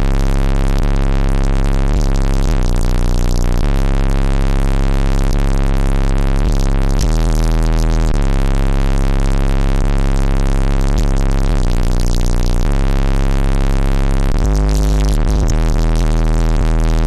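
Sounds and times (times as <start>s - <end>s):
loud bass-heavy electronic music: 0.0s - 17.0s.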